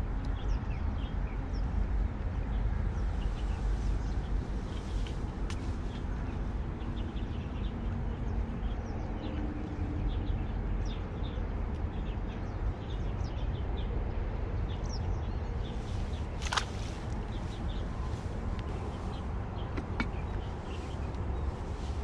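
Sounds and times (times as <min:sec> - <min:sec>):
steady low rumble: 0:00.0 - 0:22.0
small birds chirping: 0:14.6 - 0:22.0.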